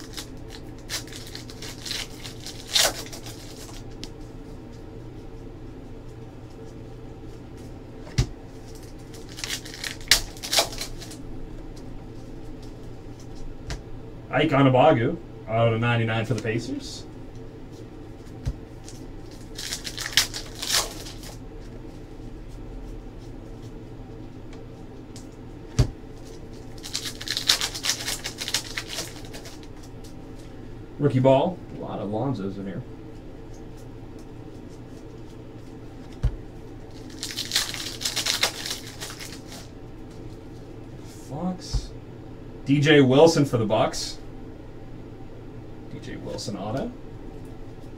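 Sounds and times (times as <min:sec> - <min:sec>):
wrappers crinkling and tearing: 0:00.0 - 0:04.2, 0:08.5 - 0:11.2, 0:18.8 - 0:21.4, 0:26.2 - 0:30.0, 0:36.8 - 0:39.7
cards rustling and flicking: 0:00.0 - 0:05.4, 0:06.5 - 0:11.2, 0:17.7 - 0:21.4, 0:25.1 - 0:30.2, 0:36.9 - 0:40.2
steady low hum: 0:00.0 - 0:47.9.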